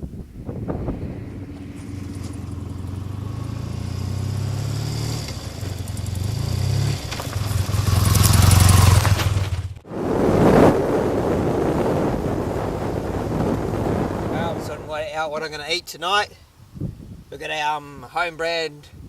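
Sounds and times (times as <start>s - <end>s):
wind rushing over microphone: 0.0s - 9.1s, 9.8s - 17.4s
motorcycle engine running: 0.4s - 9.9s.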